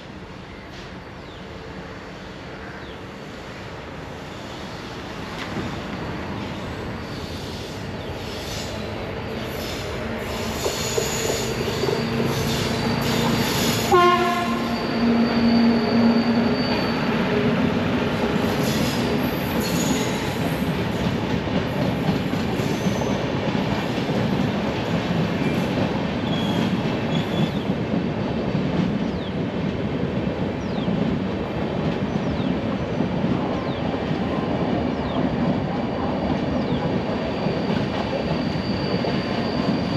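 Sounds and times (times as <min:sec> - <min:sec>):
train wheels rumbling and clattering: 0:05.1 - 0:39.9
train horn: 0:13.0 - 0:16.5.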